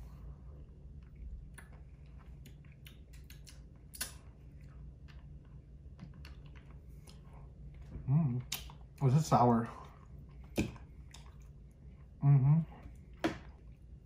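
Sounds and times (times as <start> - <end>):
chewing gum: 0.6 - 9.0
wet mouth clicks: 2.4 - 4.2.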